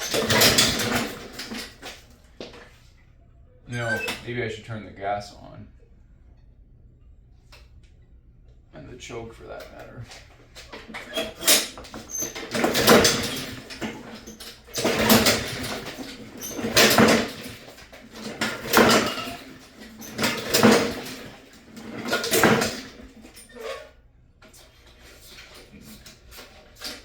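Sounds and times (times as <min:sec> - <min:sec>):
recoil starter rope pulls: 0:00.0 - 0:02.0, 0:10.7 - 0:23.7
engine turning over: 0:11.2 - 0:23.2.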